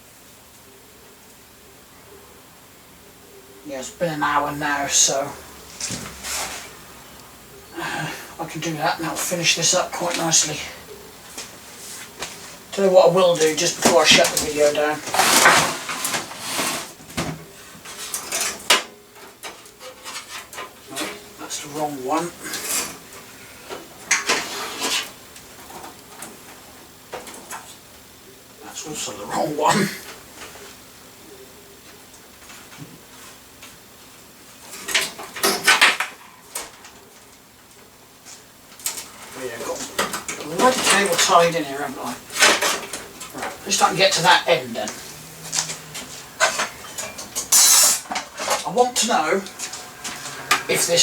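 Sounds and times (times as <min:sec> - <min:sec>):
cables and small parts clattering: 0:12.1 - 0:28.0, 0:34.6 - 0:51.0
small objects clattering by hand: 0:13.4 - 0:21.2.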